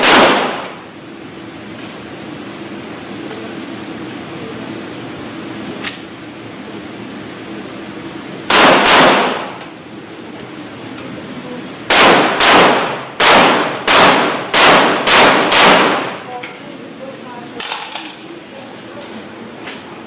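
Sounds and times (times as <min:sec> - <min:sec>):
rifle shots echoing: 0:00.0 - 0:00.8, 0:08.5 - 0:09.6, 0:11.9 - 0:16.2.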